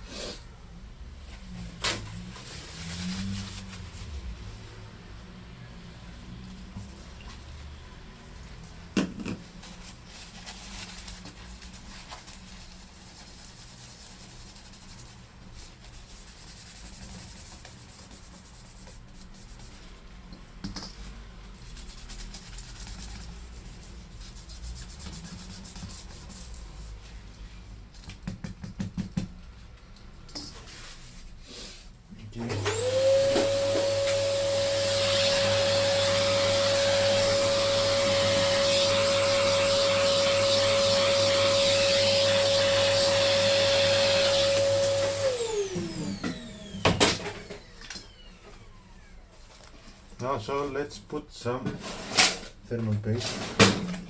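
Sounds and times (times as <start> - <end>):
rubbing and wiping: 1.3 - 4.4, 9.4 - 20.0, 21.5 - 27.7, 32.7 - 46.7.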